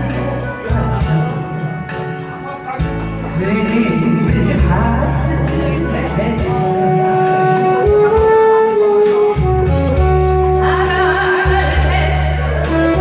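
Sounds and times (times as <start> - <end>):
trot song with steady beat: 0.0 - 13.0.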